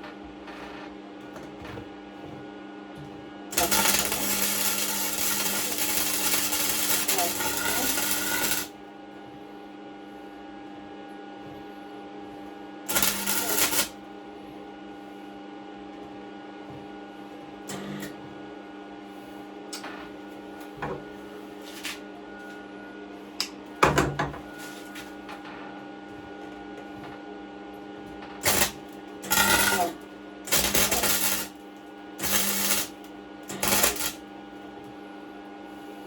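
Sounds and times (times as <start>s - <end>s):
steady hum: 0.8s - 36.0s
welder arc crackling: 3.5s - 8.7s, 12.9s - 14.0s, 28.4s - 31.6s, 32.2s - 34.2s.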